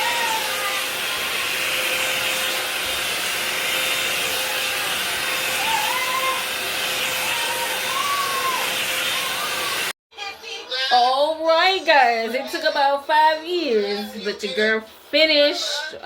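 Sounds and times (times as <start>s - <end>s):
hair dryer blowing air: 0.0s - 10.0s.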